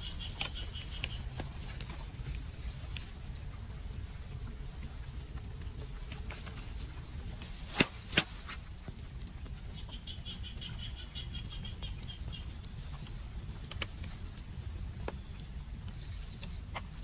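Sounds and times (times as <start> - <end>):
small bird chirping trill: 0.0 - 1.3, 9.5 - 13.0, 15.1 - 16.8
steady low rumble: 0.0 - 17.0.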